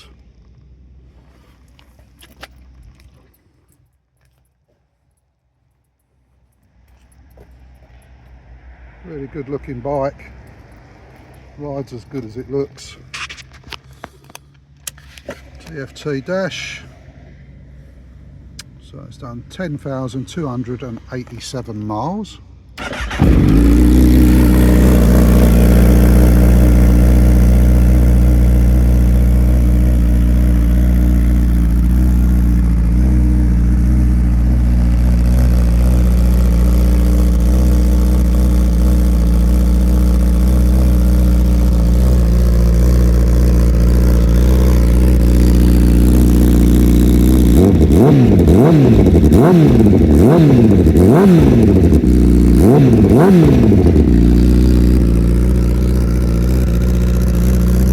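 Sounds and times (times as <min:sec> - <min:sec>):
motorcycle engine idling: 0:22.4 - 0:57.9
motorcycle engine revving: 0:22.8 - 0:57.9.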